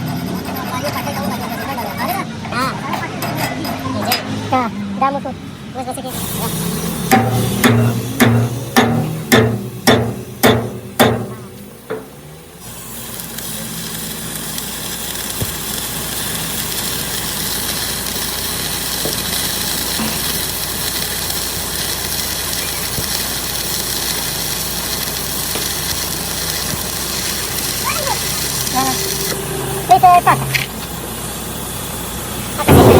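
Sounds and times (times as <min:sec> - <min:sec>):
steady hiss: 0:06.1 - 0:32.9
sharp hammer blows: 0:07.0 - 0:12.3.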